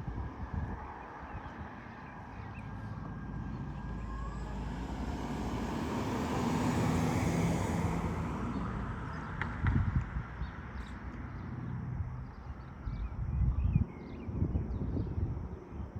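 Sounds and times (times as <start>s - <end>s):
propeller aircraft flying past: 2.4s - 9.5s.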